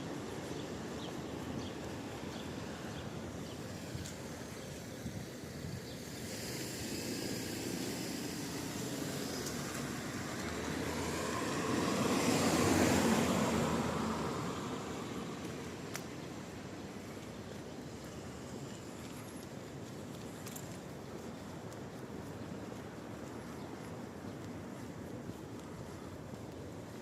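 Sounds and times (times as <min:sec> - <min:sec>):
vehicle tyres hissing on wet road: 0:02.0 - 0:17.2
steady rain: 0:06.2 - 0:15.8.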